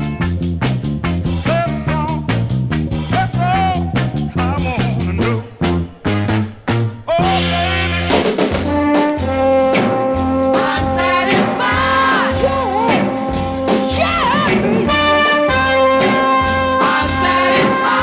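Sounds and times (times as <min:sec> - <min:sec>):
bass: 0:00.0 - 0:18.0
drums: 0:00.0 - 0:18.0
horn section holding long notes: 0:07.4 - 0:18.0.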